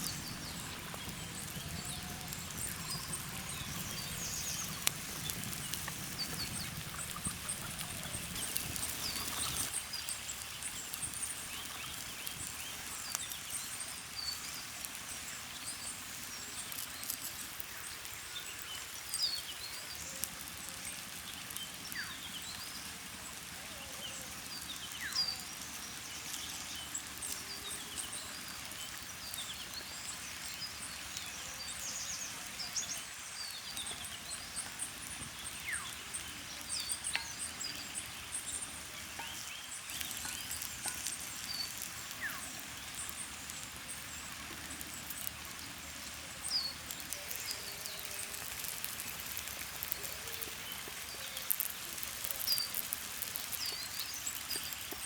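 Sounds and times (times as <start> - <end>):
birds chirping: 0.0 - 9.8
outdoor background hiss: 0.0 - 55.0
faint light ticks: 46.5 - 55.0.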